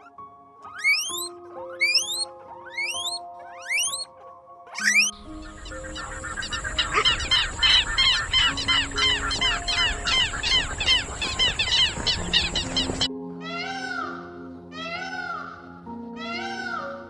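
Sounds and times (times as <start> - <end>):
birds chirping: 0.0 - 4.1, 4.7 - 13.1
soft background music: 0.0 - 17.0.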